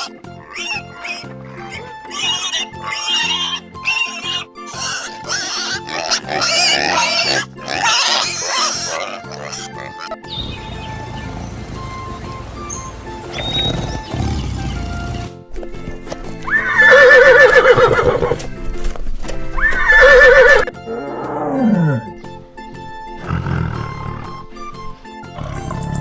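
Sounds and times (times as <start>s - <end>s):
horse whinnying: 0.0s - 10.4s, 13.3s - 15.2s, 16.5s - 18.4s, 19.6s - 22.2s, 23.2s - 24.6s, 25.3s - 26.0s
background music: 0.0s - 26.0s.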